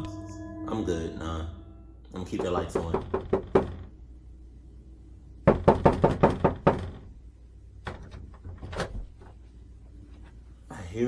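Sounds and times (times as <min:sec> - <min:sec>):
rapid knocking on a door: 0:02.4 - 0:03.9, 0:05.5 - 0:07.1.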